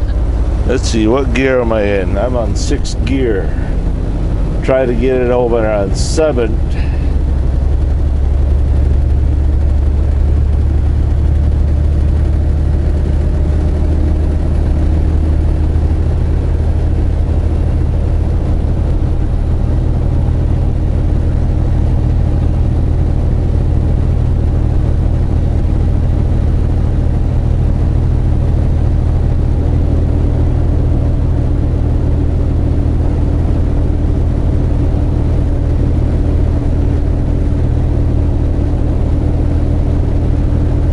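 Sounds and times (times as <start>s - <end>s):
truck diesel engine droning: 0.0s - 40.9s.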